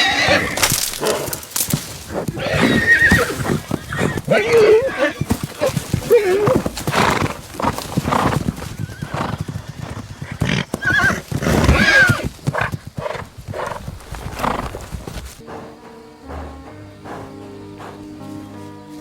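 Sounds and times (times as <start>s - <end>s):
horses squealing: 0.0s - 18.7s
hooves thudding and scuffling: 0.0s - 19.0s
music: 15.4s - 19.0s.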